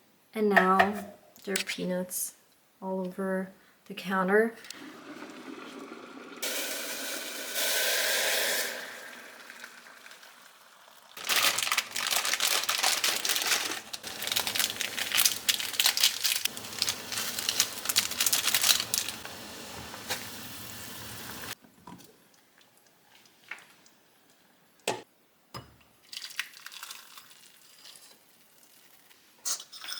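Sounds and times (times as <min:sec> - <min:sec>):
dense crinkling and rustling: 0:11.2 - 0:20.3.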